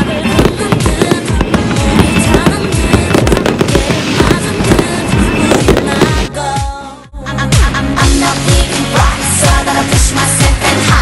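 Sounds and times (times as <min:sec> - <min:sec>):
fireworks bursting and crackling: 0:00.0 - 0:06.4
music playing: 0:00.0 - 0:11.0.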